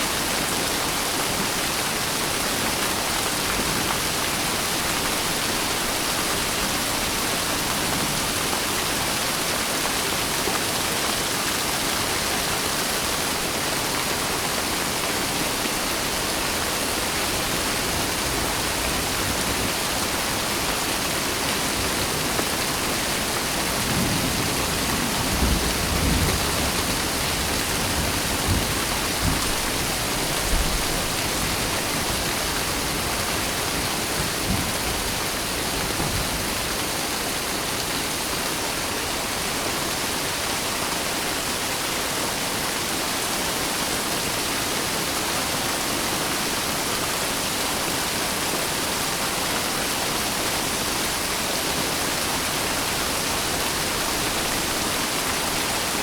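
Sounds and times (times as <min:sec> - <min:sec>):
heavy rain hiss: 0:00.0 - 0:56.0.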